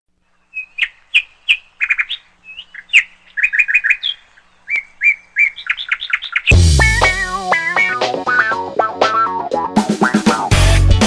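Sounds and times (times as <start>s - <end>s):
small bird chirping: 0.2s - 8.6s.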